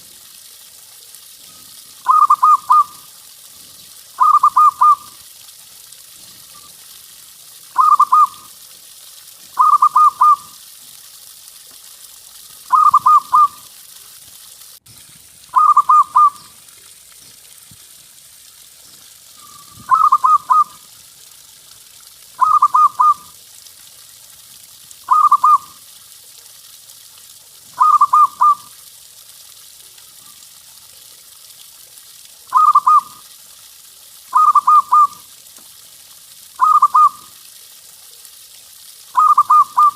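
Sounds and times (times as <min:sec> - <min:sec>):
faint steady hiss: 0:00.0 - 0:39.9
dove cooing: 0:02.0 - 0:02.9, 0:04.2 - 0:05.1, 0:07.8 - 0:08.4, 0:09.6 - 0:10.5, 0:12.7 - 0:13.6, 0:15.6 - 0:16.5, 0:19.4 - 0:20.8, 0:22.4 - 0:23.3, 0:25.1 - 0:25.7, 0:27.8 - 0:28.6, 0:32.5 - 0:33.1, 0:34.4 - 0:35.2, 0:36.6 - 0:37.2, 0:39.2 - 0:39.9.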